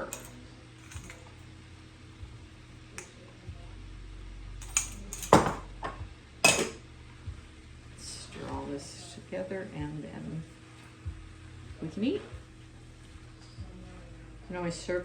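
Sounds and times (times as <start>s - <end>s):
metal utensil clinking on cookware: 0.0s - 1.4s, 4.6s - 5.6s, 6.4s - 6.8s
faint low hum: 0.0s - 15.0s.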